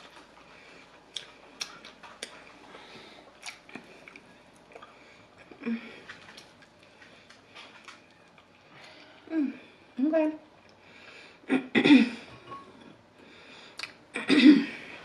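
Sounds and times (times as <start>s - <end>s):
chewing food: 0.0s - 9.2s
low voice hum: 9.2s - 9.8s.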